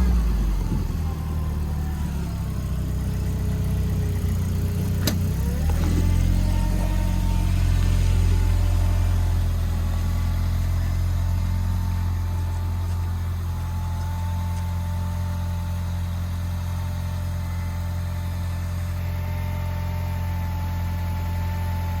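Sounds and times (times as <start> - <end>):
all-terrain vehicle engine running: 0.0 - 22.0.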